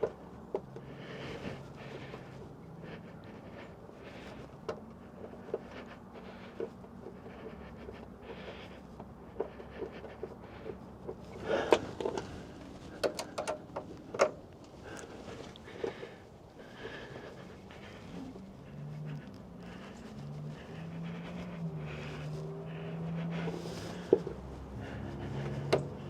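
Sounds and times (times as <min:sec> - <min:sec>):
light clicks and knocks on parts: 0:00.0 - 0:02.6, 0:04.4 - 0:16.3, 0:23.9 - 0:26.0
steady low hum: 0:00.0 - 0:26.0.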